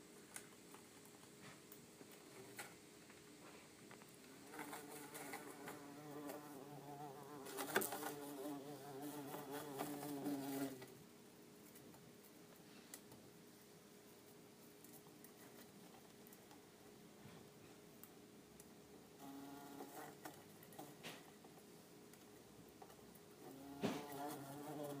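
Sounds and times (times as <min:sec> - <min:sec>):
bumble bee buzzing: 0:04.5 - 0:10.9, 0:19.2 - 0:20.2, 0:23.5 - 0:25.0.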